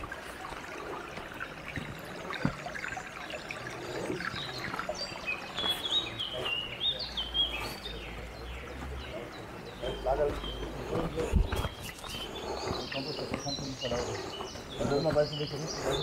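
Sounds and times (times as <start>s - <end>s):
footsteps on dirt path: 0.0s - 2.7s, 5.5s - 6.7s, 9.8s - 16.0s
small stream trickling: 0.0s - 16.0s.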